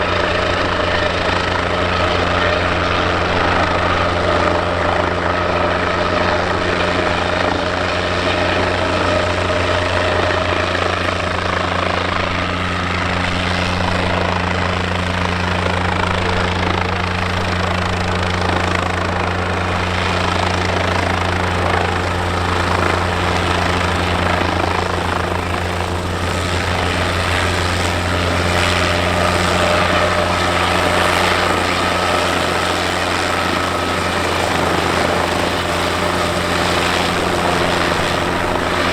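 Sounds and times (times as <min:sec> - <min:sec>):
helicopter engine and rotor drone: 0:00.0 - 0:38.9
faint high whine: 0:19.4 - 0:38.9.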